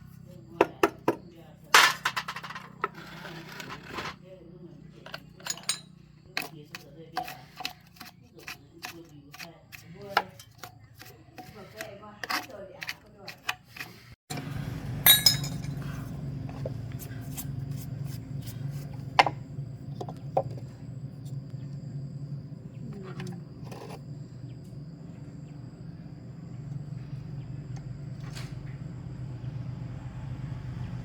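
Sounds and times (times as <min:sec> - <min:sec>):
tools clicking and scraping: 0:05.0 - 0:14.2
steady low hum: 0:13.8 - 0:31.0.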